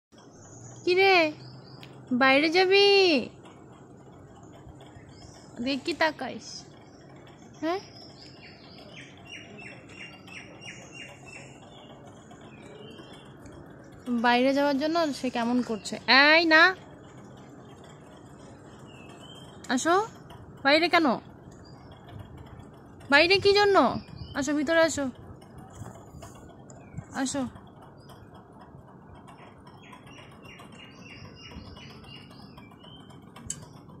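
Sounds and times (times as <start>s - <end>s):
small bird chirping: 0.2s - 3.4s, 4.5s - 17.2s, 18.1s - 33.9s.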